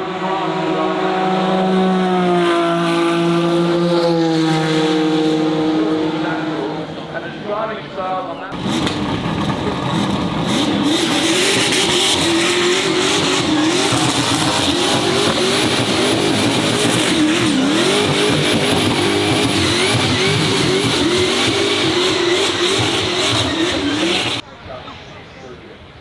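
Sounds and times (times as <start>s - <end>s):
racing car engine at high revs: 0.0s - 7.8s, 8.5s - 24.4s
tyres squealing: 8.1s - 24.4s.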